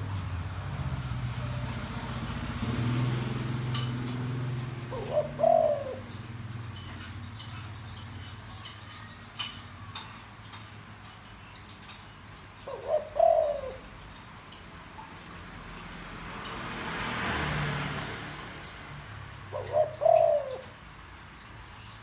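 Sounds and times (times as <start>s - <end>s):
dove cooing: 1.3s - 10.0s, 12.4s - 14.4s, 19.2s - 21.2s.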